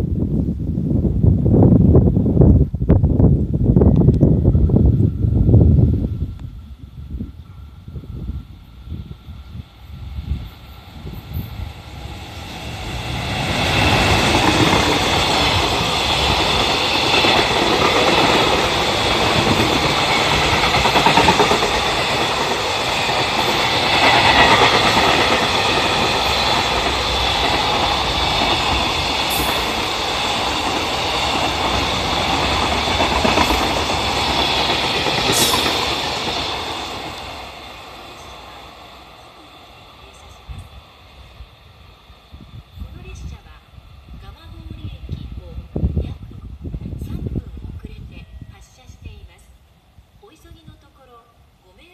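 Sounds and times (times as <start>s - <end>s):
freight train rumbling past: 0.0s - 51.9s.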